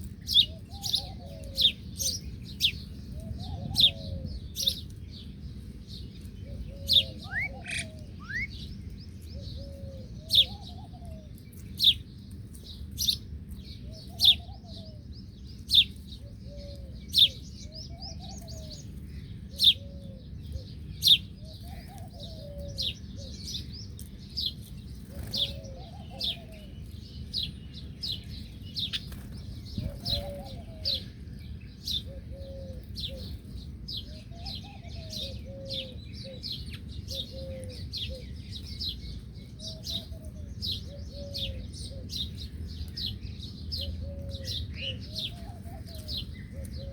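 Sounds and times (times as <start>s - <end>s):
small birds chirping: 0.0s - 46.9s
dove cooing: 3.2s - 4.8s, 6.4s - 8.6s, 9.4s - 11.2s, 21.4s - 23.3s, 25.1s - 26.7s, 29.8s - 31.2s, 32.0s - 33.4s, 34.1s - 38.3s, 39.6s - 42.2s, 43.8s - 46.9s.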